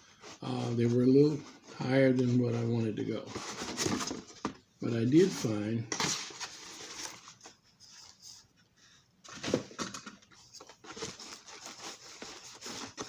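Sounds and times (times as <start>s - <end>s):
packaging rustling: 5.9s - 8.2s, 9.2s - 13.0s.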